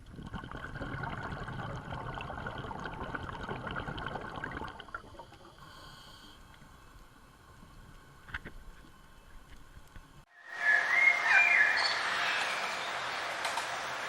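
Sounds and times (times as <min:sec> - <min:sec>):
water trickling and splashing: 0:00.0 - 0:05.7.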